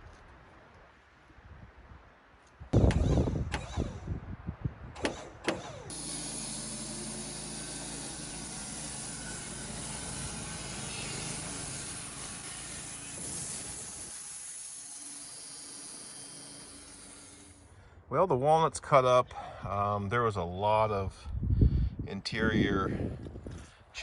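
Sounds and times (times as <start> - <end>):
sawmill low hum: 5.0 - 18.4
saw blade hissing: 5.9 - 17.7.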